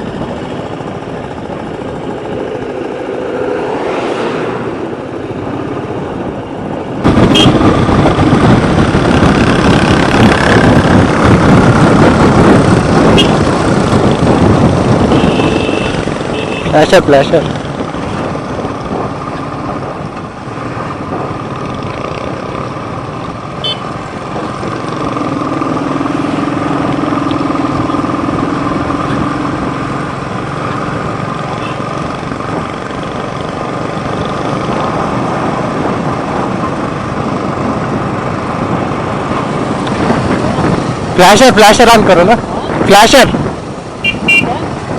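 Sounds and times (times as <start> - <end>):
road and riding noise: 0.0 - 44.9
motorcycle engine running: 7.0 - 16.7.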